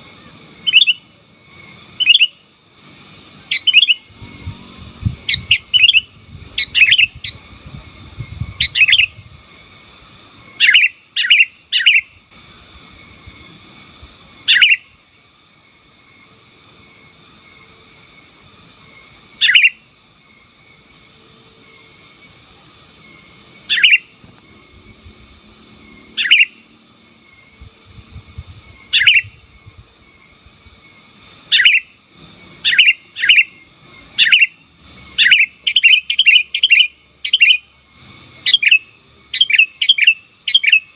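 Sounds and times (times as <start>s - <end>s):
faint steady hiss: 0.0s - 40.9s
bird singing short loud calls: 1.9s - 2.4s, 3.5s - 4.5s, 5.1s - 9.2s, 10.5s - 12.1s, 19.4s - 19.8s, 23.7s - 24.1s, 26.2s - 26.6s, 28.7s - 29.4s, 31.5s - 31.9s, 34.2s - 37.6s.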